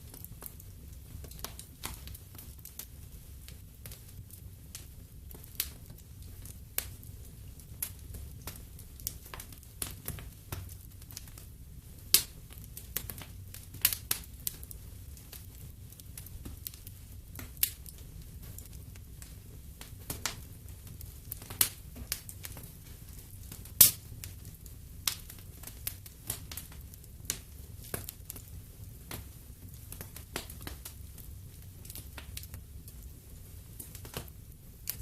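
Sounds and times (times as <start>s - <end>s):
fire popping and snapping: 0.0s - 35.0s
low rumble of burning: 0.0s - 35.0s.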